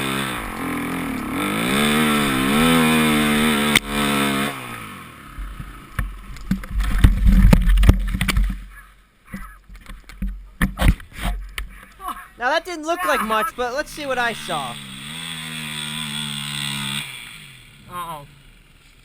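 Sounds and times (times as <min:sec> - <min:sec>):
dirt bike engine revving: 0:00.0 - 0:04.7, 0:14.7 - 0:17.4.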